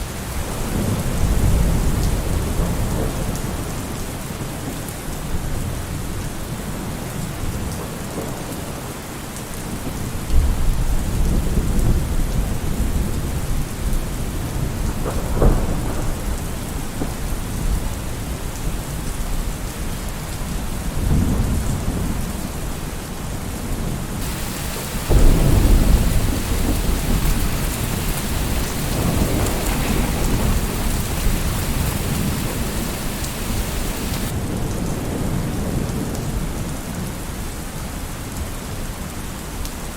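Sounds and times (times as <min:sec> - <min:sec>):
heavy rain: 0:00.0 - 0:39.9
sharp thunder crack: 0:24.2 - 0:34.4
thunder rolling: 0:24.2 - 0:34.4.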